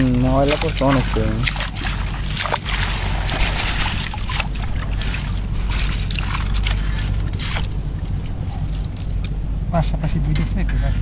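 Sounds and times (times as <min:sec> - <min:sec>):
flowing water rushing: 0:00.0 - 0:08.0
water splashing and sloshing: 0:00.0 - 0:09.7.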